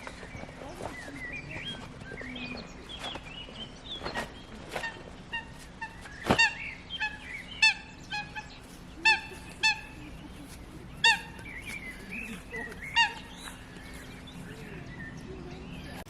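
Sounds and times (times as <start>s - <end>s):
faint steady hum: 0.0s - 16.0s
bird honking calls: 3.6s - 16.0s.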